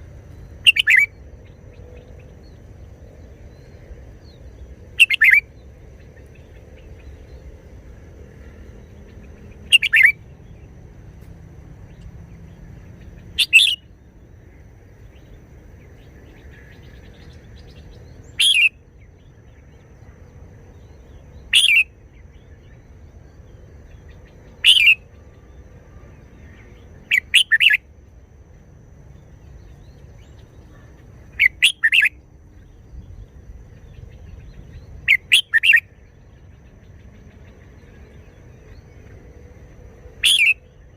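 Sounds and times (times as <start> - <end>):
bird singing short phrases: 0.4 - 1.2, 5.0 - 5.4, 9.6 - 10.2, 13.4 - 14.0, 16.3 - 18.8, 21.4 - 21.8, 24.6 - 25.1, 27.0 - 27.8, 29.7 - 33.2, 33.8 - 36.0, 40.2 - 40.7.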